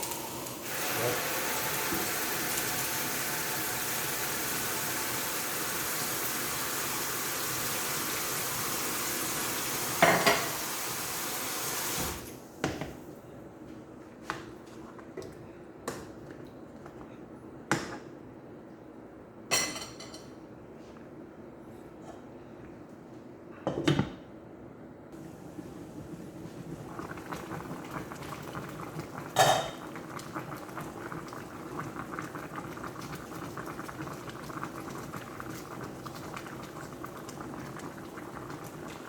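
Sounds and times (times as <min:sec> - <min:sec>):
tap water running into sink: 0:00.0 - 0:12.3
dishes and pots clinking: 0:10.0 - 0:10.6, 0:19.5 - 0:20.4.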